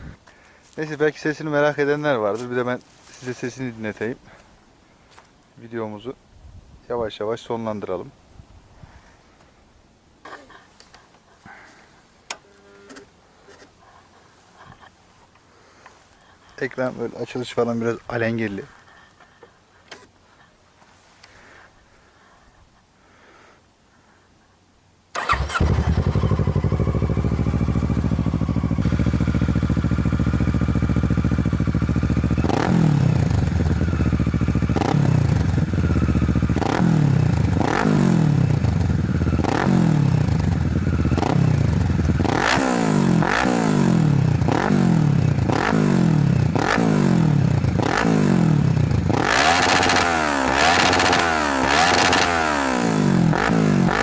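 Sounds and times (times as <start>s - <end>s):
motorcycle engine idling and revving: 25.2s - 54.0s.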